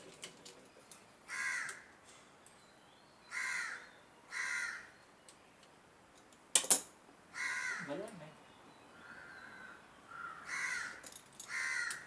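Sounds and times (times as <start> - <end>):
crow cawing: 1.3 - 1.9, 3.3 - 5.0, 7.3 - 8.0, 9.0 - 12.0.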